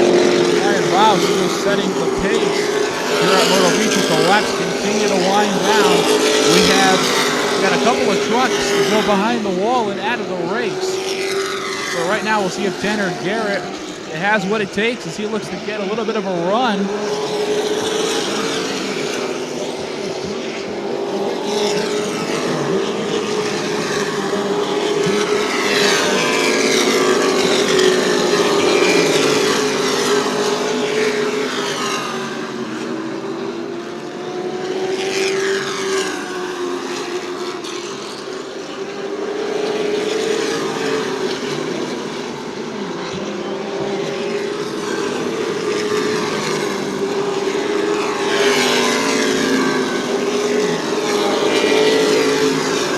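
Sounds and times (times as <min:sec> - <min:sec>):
racing truck engines droning: 0:00.0 - 0:52.9.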